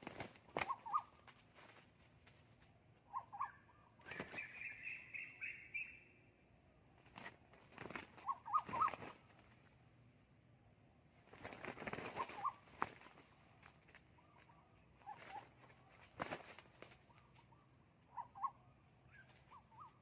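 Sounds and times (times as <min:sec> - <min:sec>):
wing flaps: 0:00.0 - 0:02.7, 0:04.0 - 0:04.8, 0:07.0 - 0:09.8, 0:11.2 - 0:17.5.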